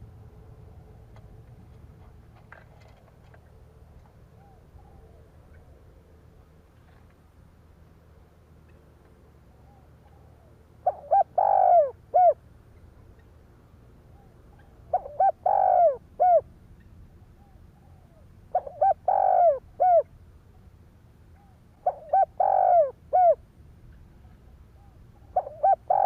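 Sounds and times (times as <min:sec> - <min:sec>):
dove cooing: 0:04.3 - 0:06.0, 0:09.5 - 0:12.4, 0:14.1 - 0:16.5, 0:17.4 - 0:20.1, 0:21.4 - 0:23.4, 0:24.8 - 0:26.0.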